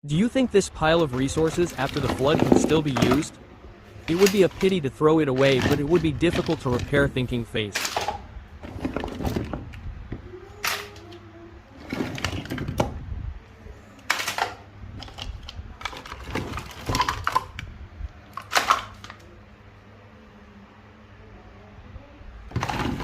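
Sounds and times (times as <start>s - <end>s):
hard objects knocking and clattering: 1.0s - 4.8s, 5.4s - 7.1s, 7.8s - 10.9s, 11.8s - 13.0s, 14.1s - 17.6s, 22.5s - 23.0s.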